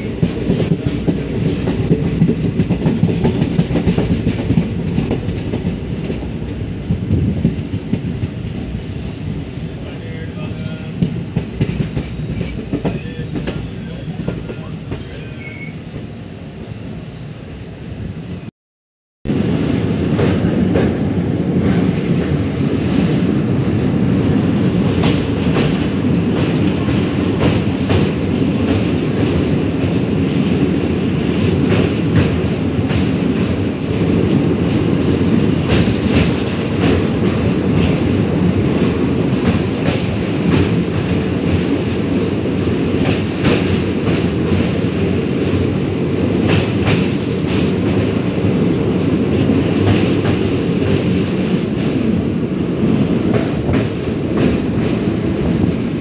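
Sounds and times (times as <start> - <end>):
train rumbling across bridge: 0.0 - 18.5, 19.3 - 56.0.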